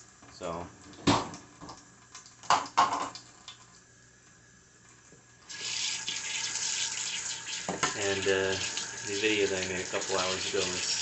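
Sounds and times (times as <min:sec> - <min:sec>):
tap water running into sink: 0:05.4 - 0:11.0.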